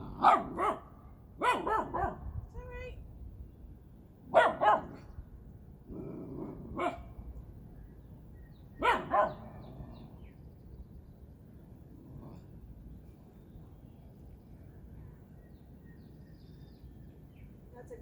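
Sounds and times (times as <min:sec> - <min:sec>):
dog barking: 0:00.2 - 0:02.2, 0:04.3 - 0:05.0, 0:06.8 - 0:07.1, 0:08.8 - 0:09.4.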